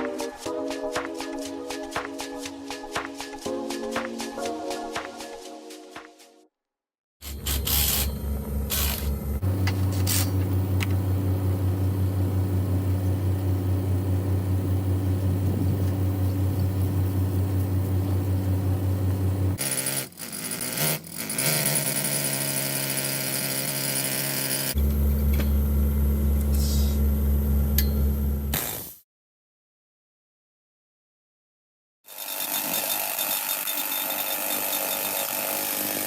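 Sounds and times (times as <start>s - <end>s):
machine low pulsing hum: 7.2s - 19.6s, 24.8s - 28.5s.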